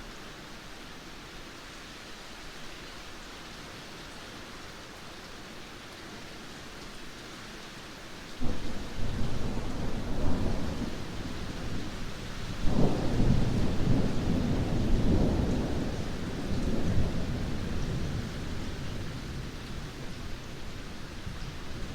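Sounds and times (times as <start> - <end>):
heavy rain falling: 0.0 - 21.9
thunder crack and rumble: 8.4 - 19.4.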